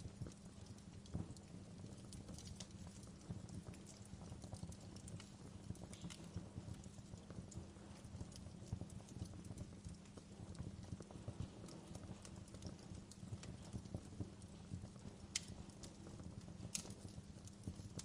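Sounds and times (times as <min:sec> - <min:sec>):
wood fire crackling: 0:00.0 - 0:18.0
low steady rumble: 0:05.2 - 0:18.0.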